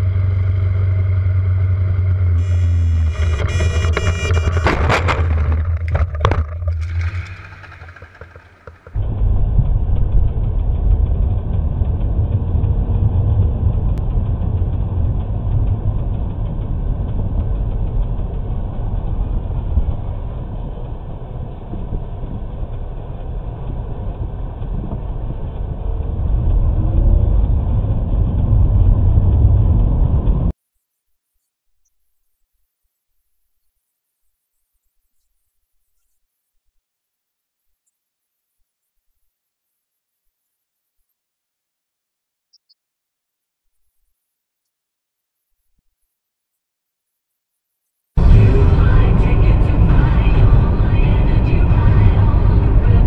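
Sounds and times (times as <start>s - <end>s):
car engine and road noise: 0.0s - 30.6s, 48.2s - 53.0s.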